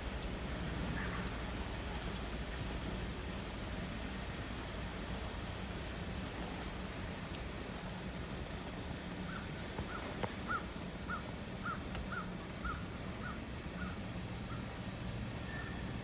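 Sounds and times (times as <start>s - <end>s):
bird calling short calls: 9.3s - 14.0s.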